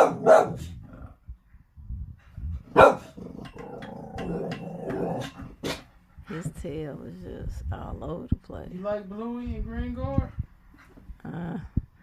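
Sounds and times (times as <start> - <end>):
dog barking: 0.0 - 0.7, 2.7 - 3.2
dog growling: 0.0 - 1.2, 2.6 - 5.9.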